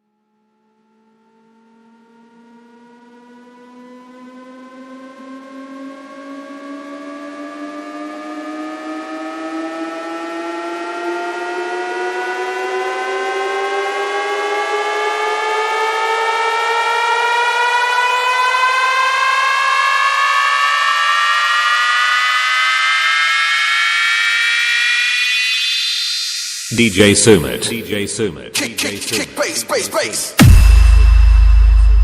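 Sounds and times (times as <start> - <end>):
electronic rising sweep tone: 21.4 - 28.1.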